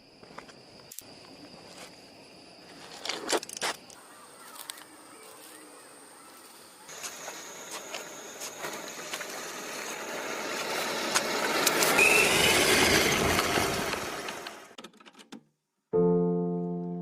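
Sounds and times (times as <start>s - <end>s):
rc truck motor and tyres: 6.9s - 14.8s
rising motor whine: 7.4s - 14.8s.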